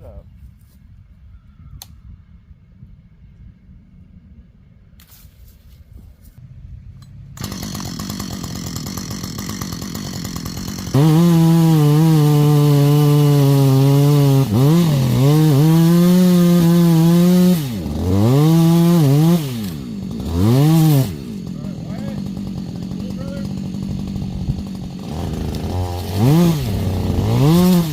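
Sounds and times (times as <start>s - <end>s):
chainsaw revving: 7.3s - 27.9s.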